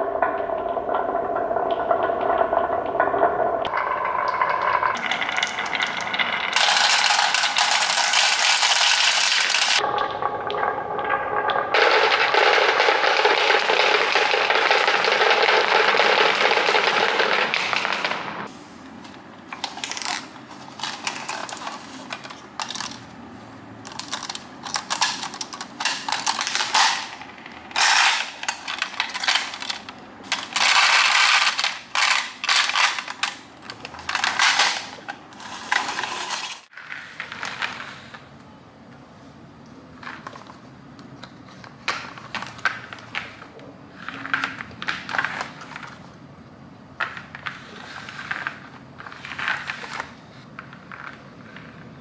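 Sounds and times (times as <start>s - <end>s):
marbles clattering: 3.7s - 9.9s, 11.6s - 18.5s, 19.6s - 23.1s, 23.8s - 37.9s.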